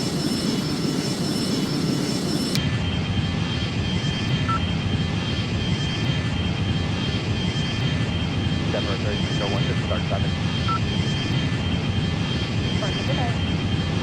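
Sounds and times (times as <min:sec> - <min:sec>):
airplane engines droning: 0:00.0 - 0:14.0
high engine whine: 0:00.0 - 0:14.0.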